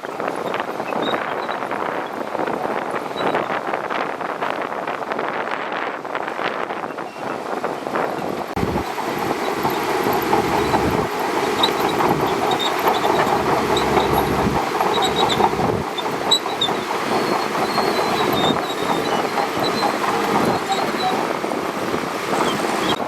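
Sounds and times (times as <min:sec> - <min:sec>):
bulldozer running: 0:08.6 - 0:23.0
steel tracks clattering: 0:08.6 - 0:23.0
short high squeaks: 0:09.4 - 0:21.4.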